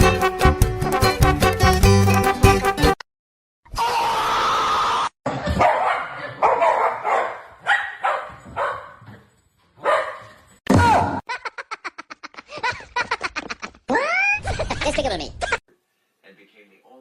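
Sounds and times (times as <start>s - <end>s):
dog barking: 5.4s - 9.2s, 9.8s - 10.4s.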